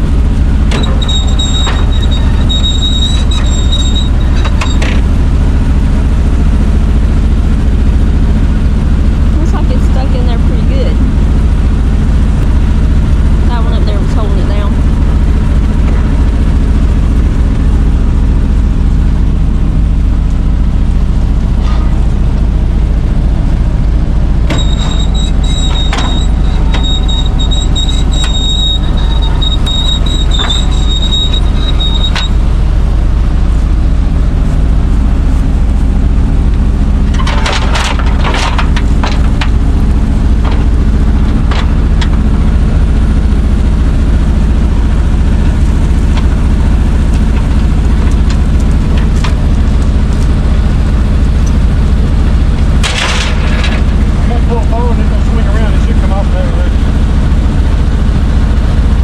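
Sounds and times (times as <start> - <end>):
truck engine running: 0.0 - 59.0
high steady squeal: 0.4 - 5.6, 24.4 - 35.9
sharp metal clanks: 24.5 - 32.4.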